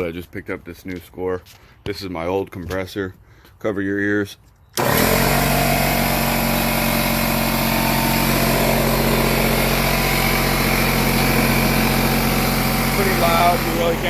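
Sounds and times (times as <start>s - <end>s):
air compressor running: 4.8s - 14.0s.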